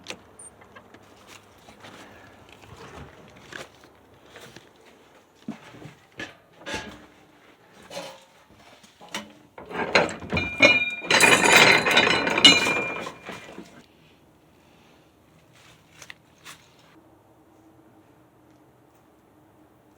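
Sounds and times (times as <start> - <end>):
metallic rattling and scraping: 5.6 - 7.2, 7.8 - 13.8
metal knocks and clinks: 9.0 - 13.8.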